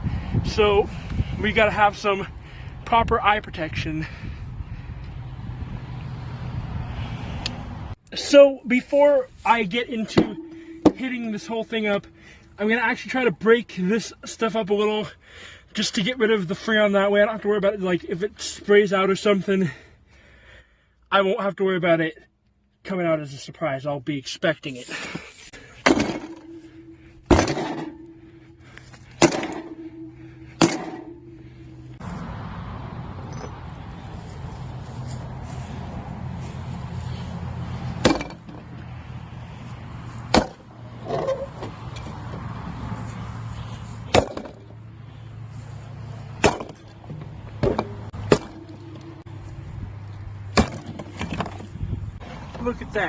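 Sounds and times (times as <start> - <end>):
maul striking metal cabinet: 10.0 - 11.3, 25.8 - 28.4, 29.2 - 32.0, 38.0 - 38.7, 40.3 - 41.3, 44.1 - 44.6, 46.4 - 46.8, 47.6 - 49.1, 50.5 - 51.6
metallic ring: 10.1 - 12.2, 26.0 - 32.0.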